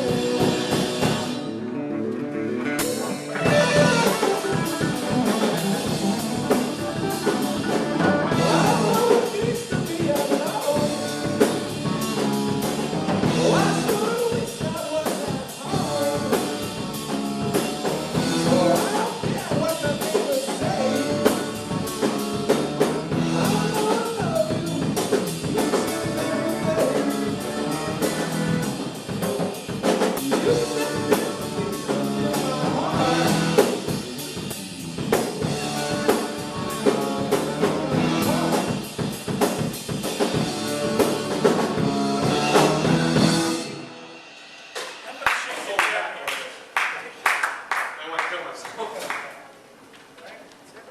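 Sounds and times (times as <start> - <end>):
person singing: 0.0 - 1.4, 7.2 - 11.6, 13.2 - 22.2, 23.1 - 28.5, 30.1 - 34.0, 36.0 - 39.0
live rock band: 0.0 - 46.2.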